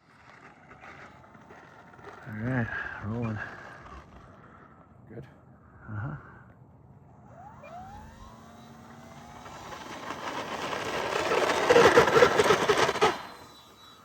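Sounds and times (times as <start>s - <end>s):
electric model plane whine: 0.0s - 5.6s, 6.2s - 14.0s.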